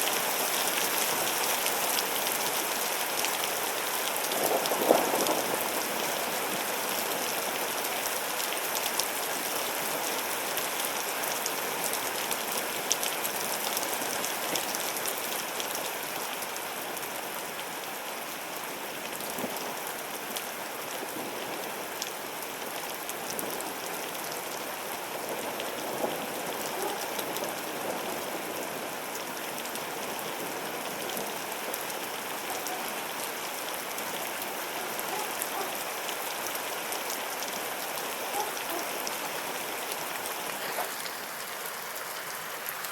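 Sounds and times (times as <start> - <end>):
heavy rain pouring: 0.0 - 42.9
raindrops hitting surfaces: 0.0 - 42.9.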